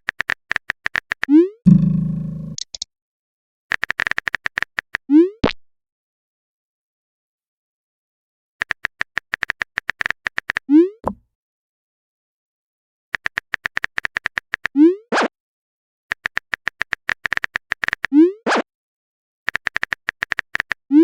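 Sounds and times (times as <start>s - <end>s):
rapid keyboard typing clicks: 0.0s - 1.3s, 2.6s - 2.8s, 3.7s - 5.0s, 8.6s - 10.6s, 13.2s - 14.7s, 16.1s - 18.1s, 19.5s - 20.8s
rising bloop and pop: 1.7s - 2.6s.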